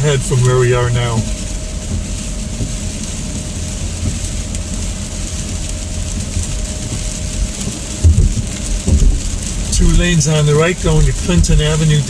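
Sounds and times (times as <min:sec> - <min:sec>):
low thumps: 0:00.0 - 0:11.8
road rumble inside car: 0:00.0 - 0:12.0
tyres hissing on wet road: 0:00.0 - 0:12.0.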